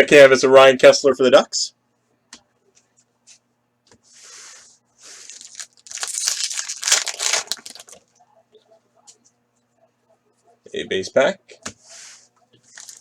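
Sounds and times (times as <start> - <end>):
foil pack tearing and crinkling: 5.2 - 8.0, 12.7 - 13.0.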